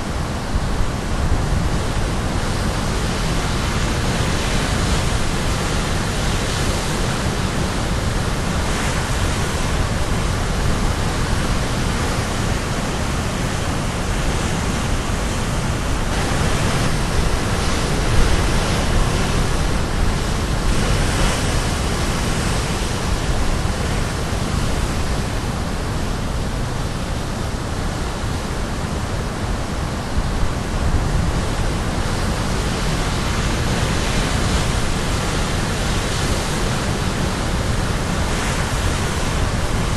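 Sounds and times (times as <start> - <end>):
surf crashing on shore: 0.0 - 39.9.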